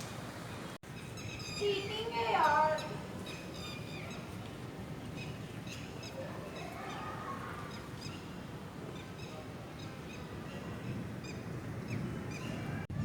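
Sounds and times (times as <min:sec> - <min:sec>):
rain: 0:00.0 - 0:00.8.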